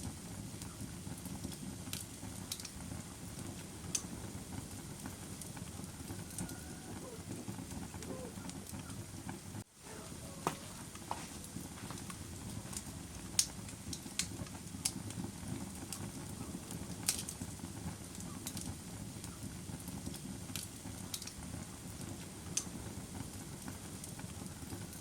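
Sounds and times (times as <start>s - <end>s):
campfire crackling: 0.0s - 25.0s
low rumble of burning fire: 0.0s - 25.0s.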